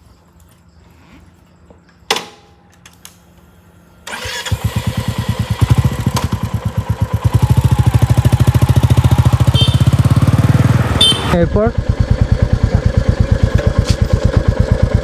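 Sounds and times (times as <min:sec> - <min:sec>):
electric starter cranking: 0:04.0 - 0:11.4
motorcycle engine idling: 0:04.1 - 0:15.0.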